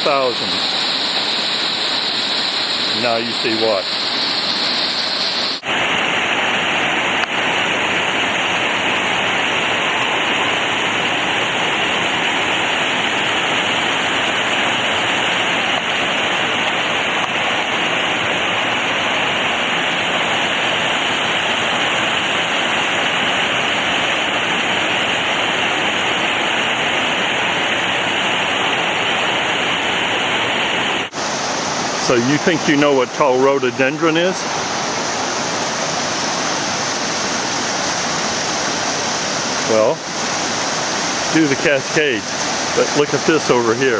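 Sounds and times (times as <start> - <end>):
water rushing over rocks: 0.0 - 43.9.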